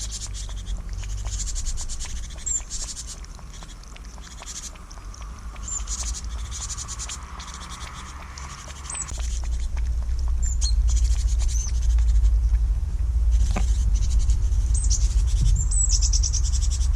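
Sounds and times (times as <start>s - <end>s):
dense fine ticking: 0.0s - 16.9s
small birds chirping: 0.0s - 16.9s
loud low rumble: 4.2s - 16.9s.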